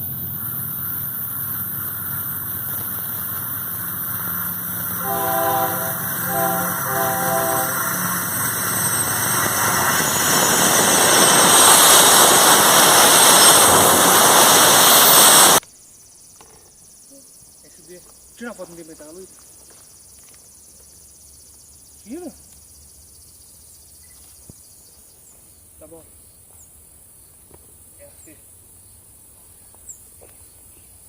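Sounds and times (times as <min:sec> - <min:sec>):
diesel locomotive engine running: 0:00.0 - 0:15.6
train rushing noise: 0:04.2 - 0:15.6
locomotive air horn blasts: 0:04.8 - 0:08.8.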